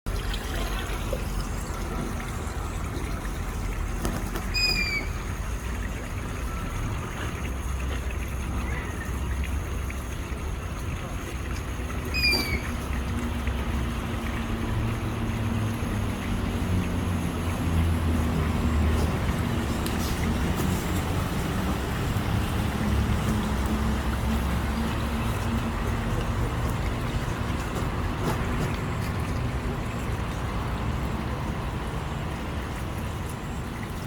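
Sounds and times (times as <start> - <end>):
short bright bird calls: 4.5 - 5.2, 12.1 - 12.8.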